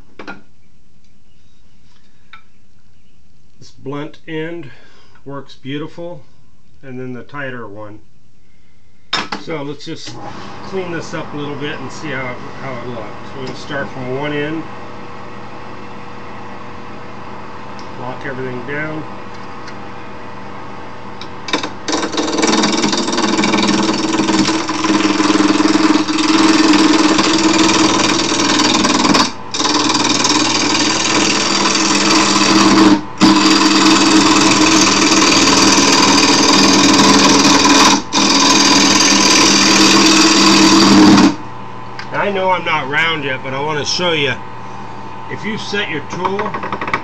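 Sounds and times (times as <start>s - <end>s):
wood lathe motor humming: 21.2s - 41.4s
turning tool scraping wood: 21.5s - 41.4s.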